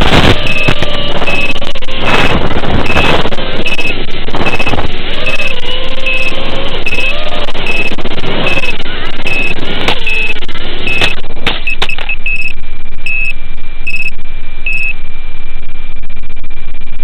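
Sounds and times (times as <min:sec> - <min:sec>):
sharp clicks: 0:00.0 - 0:13.3
continuous high tone: 0:00.0 - 0:16.0
loud steady hiss: 0:00.0 - 0:16.1
short electronic beeps: 0:00.3 - 0:15.0.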